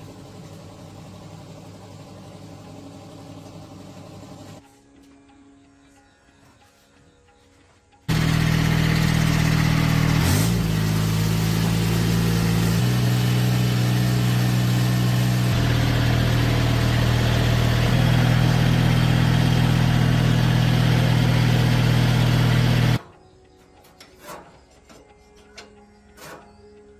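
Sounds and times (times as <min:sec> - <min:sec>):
tractor engine running: 0:00.0 - 0:04.6, 0:08.1 - 0:23.0.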